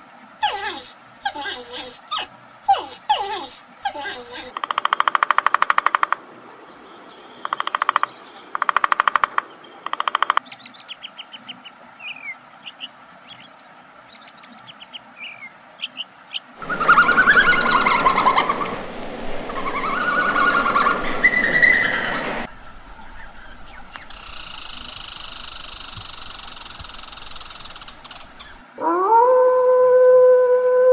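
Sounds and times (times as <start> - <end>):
wavering animal calls: 0.4 - 6.2, 16.6 - 30.9
bird chirping: 0.4 - 28.7
woodpecker drumming: 4.4 - 6.3, 7.4 - 10.6, 16.6 - 28.7.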